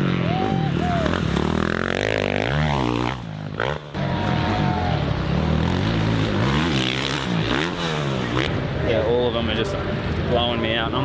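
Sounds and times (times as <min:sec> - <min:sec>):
motorbike engine revving: 0:00.0 - 0:08.8.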